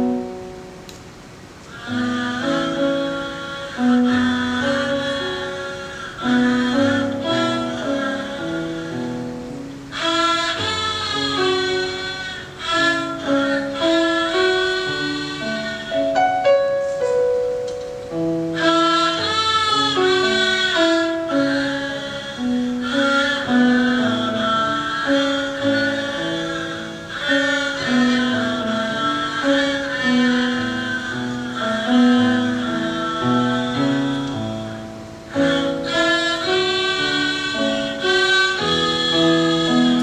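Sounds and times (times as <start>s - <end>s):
low held accompaniment: 0.0s - 40.0s
fiddle playing bowed melody: 18.2s - 40.0s.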